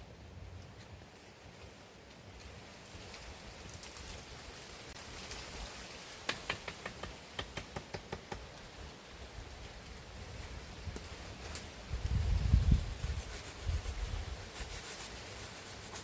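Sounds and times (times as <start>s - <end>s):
faint steady hiss: 0.0s - 16.0s
light sharp knocks: 6.2s - 8.5s.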